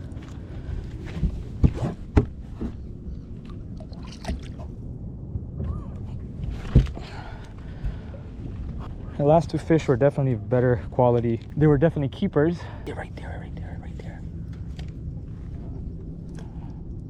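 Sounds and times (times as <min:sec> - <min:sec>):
water lapping against boat hull: 0:00.0 - 0:04.8
steady low rumble: 0:00.0 - 0:17.0.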